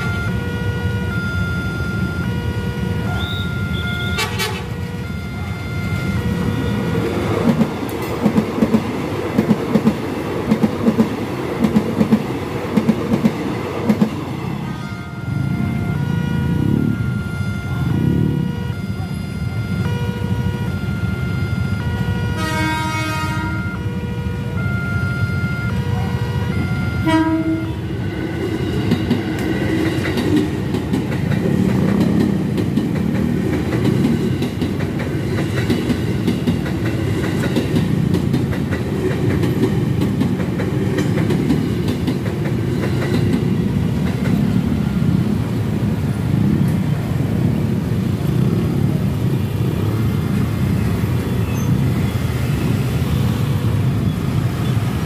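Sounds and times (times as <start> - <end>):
train horn toots: 0.0 - 7.0, 14.6 - 24.8, 25.6 - 28.5
train wheels rumbling on rails: 0.0 - 24.1, 25.4 - 55.0.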